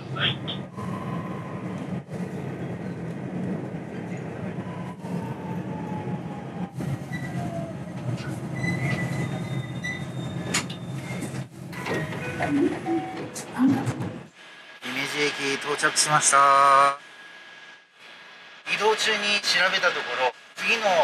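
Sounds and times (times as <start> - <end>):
wheel and brake squeals: 7.0 - 7.5, 8.2 - 13.2.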